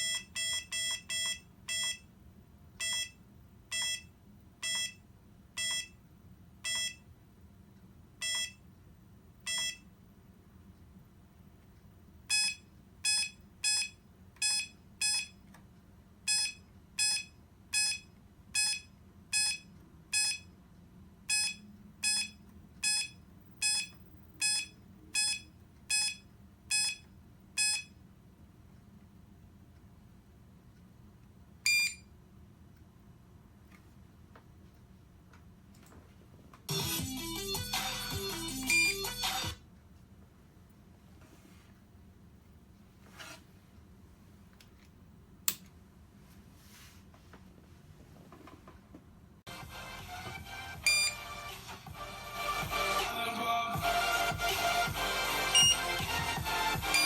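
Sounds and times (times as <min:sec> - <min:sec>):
short electronic buzzer beeps: 0:00.0 - 0:02.0, 0:02.8 - 0:05.0, 0:06.7 - 0:07.0, 0:08.2 - 0:08.6, 0:09.5 - 0:09.8, 0:12.3 - 0:15.4, 0:16.3 - 0:20.5, 0:21.3 - 0:27.0, 0:27.6 - 0:27.9, 0:31.7 - 0:32.1, 0:38.1 - 0:39.3, 0:50.8 - 0:51.2, 0:55.4 - 0:56.0.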